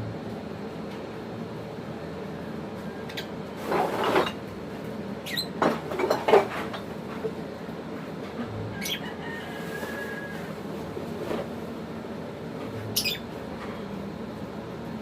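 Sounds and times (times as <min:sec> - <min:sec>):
birds rustling in nesting material: 0:09.5 - 0:11.6
high bird chirps: 0:13.0 - 0:13.3.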